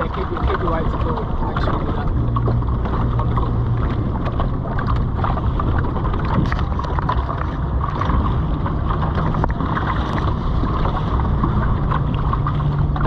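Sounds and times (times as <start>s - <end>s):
light splashes and ticks: 0.0s - 13.0s
water washing along hull: 0.0s - 13.0s
wind buffeting microphone: 0.0s - 13.0s.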